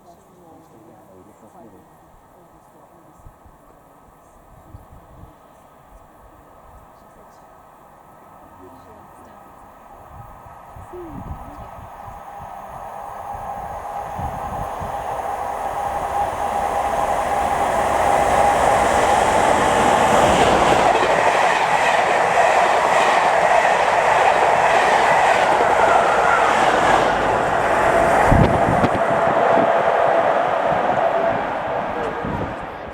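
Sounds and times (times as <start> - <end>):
train passing at speed: 0.0 - 32.9
clickety-clack of train wheels: 13.5 - 29.8, 30.7 - 32.9.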